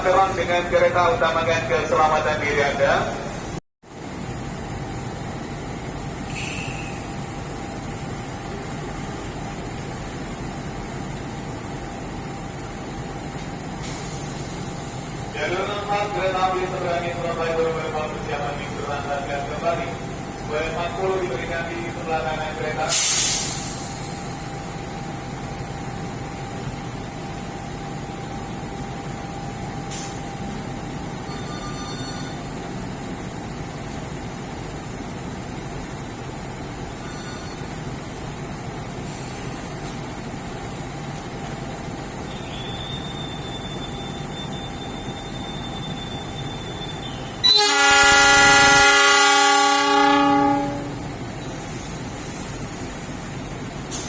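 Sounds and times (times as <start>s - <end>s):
station rumble: 0.0s - 54.0s
train running noise: 0.0s - 54.0s
hiss of air: 22.9s - 24.3s, 51.6s - 53.3s
train horn blast: 47.4s - 51.2s.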